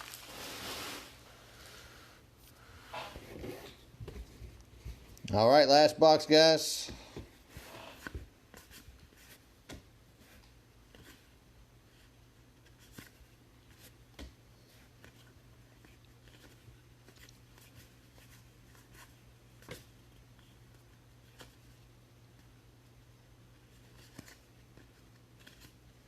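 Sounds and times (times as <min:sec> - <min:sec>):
card packs rustling and clicking: 0:00.0 - 0:01.2.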